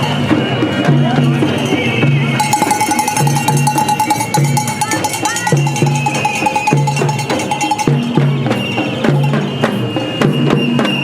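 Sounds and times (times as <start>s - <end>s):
rhythmic percussion beating: 0.0s - 11.0s
wavering ringing tone: 2.4s - 8.2s.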